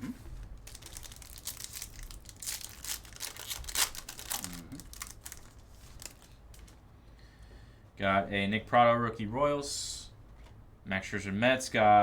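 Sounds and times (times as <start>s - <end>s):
wrappers torn and crinkled: 0.6s - 6.8s.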